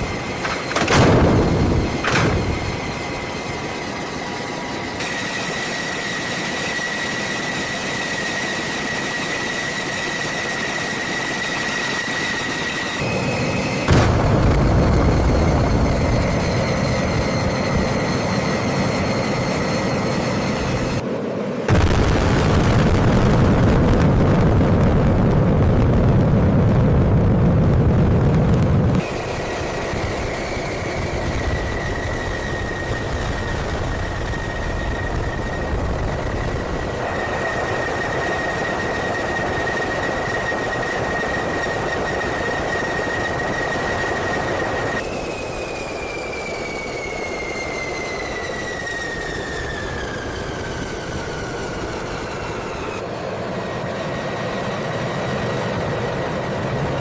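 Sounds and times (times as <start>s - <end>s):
thin high whine: 0.0s - 21.8s, 28.9s - 57.0s
deep engine-like roar: 13.0s - 45.1s.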